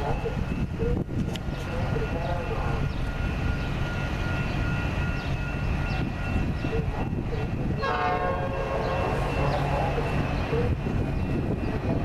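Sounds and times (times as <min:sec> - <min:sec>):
approaching train rumble: 0:00.0 - 0:12.0
locomotive horn blast: 0:07.0 - 0:10.0.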